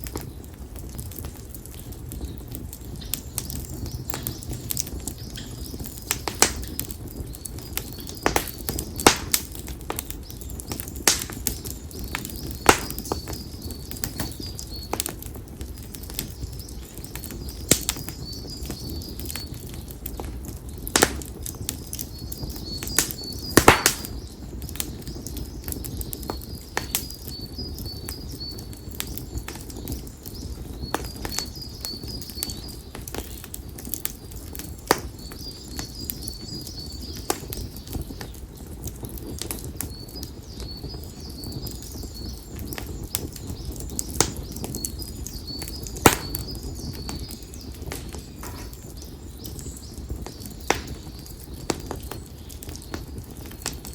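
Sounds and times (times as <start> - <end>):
campfire crackling and popping: 0.0 - 53.9
low rush of flames: 0.0 - 53.9
bird chirping: 34.6 - 38.7, 39.6 - 53.4.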